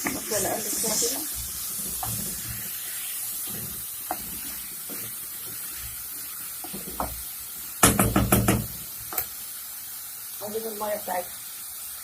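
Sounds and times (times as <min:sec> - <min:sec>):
food sizzling in a pot: 0:00.0 - 0:12.0
spoon knocking on pot: 0:07.8 - 0:08.8.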